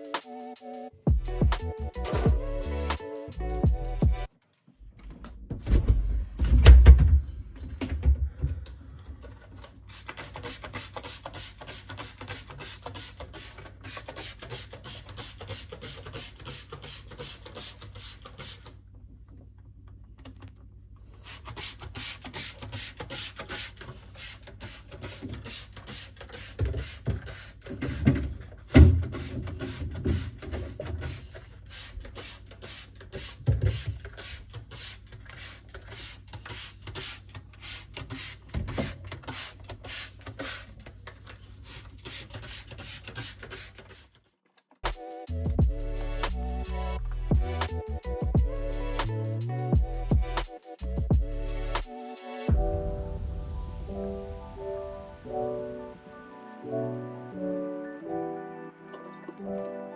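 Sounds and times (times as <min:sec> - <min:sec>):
beat-driven background music: 0:00.0 - 0:04.3, 0:44.9 - 0:59.9.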